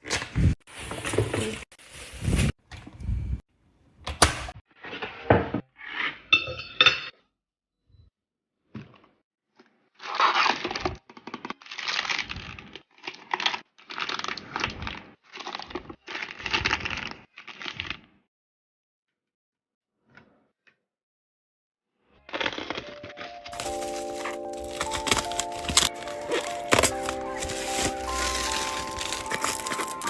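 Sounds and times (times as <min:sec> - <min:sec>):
packaging crinkling and tearing: 0:10.0 - 0:18.0, 0:22.2 - 0:30.0.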